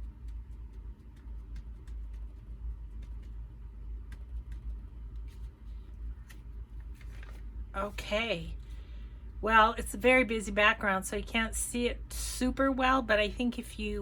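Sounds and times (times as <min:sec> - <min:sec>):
sponge dabbing on paper: 0:00.0 - 0:08.4
steady low hum: 0:00.0 - 0:14.0.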